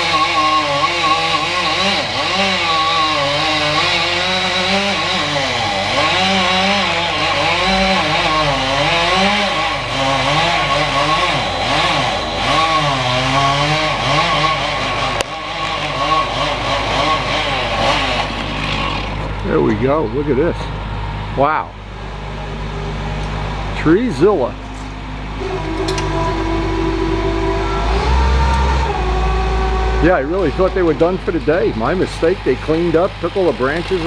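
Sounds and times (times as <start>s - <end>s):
chainsaw cutting through trunk: 0.0s - 19.6s, 25.3s - 34.0s
low engine drone: 0.0s - 34.0s.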